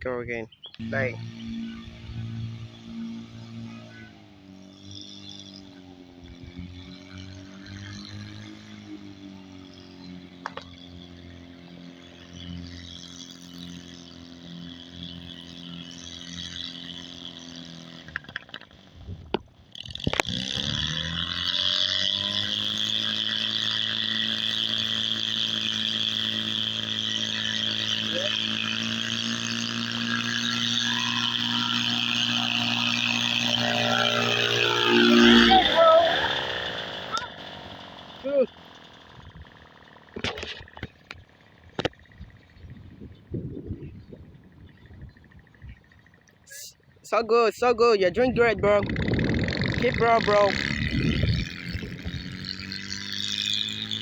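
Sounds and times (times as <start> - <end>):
two-cylinder engine running: 0.0 - 54.0.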